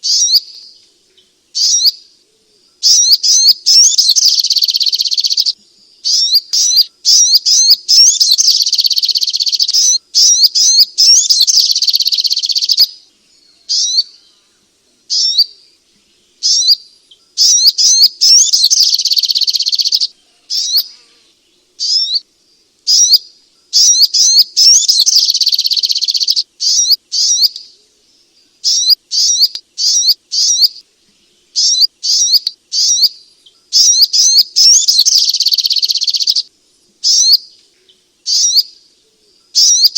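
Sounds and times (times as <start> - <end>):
bird chirping rapidly: 0.0 - 0.7, 1.5 - 2.0, 2.8 - 13.0, 13.7 - 14.2, 15.1 - 15.6, 16.4 - 21.0, 21.8 - 22.2, 22.9 - 27.7, 28.6 - 30.8, 31.5 - 37.5, 38.2 - 38.8, 39.6 - 39.9.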